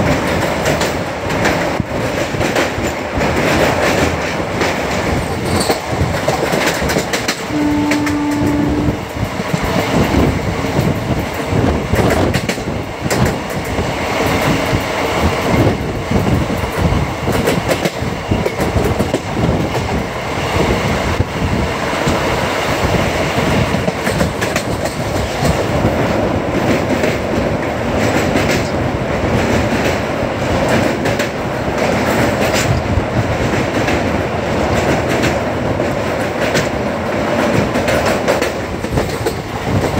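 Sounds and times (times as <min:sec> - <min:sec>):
train wheels rumbling on rail: 0:00.0 - 0:39.9
brief steady tone: 0:07.5 - 0:09.1.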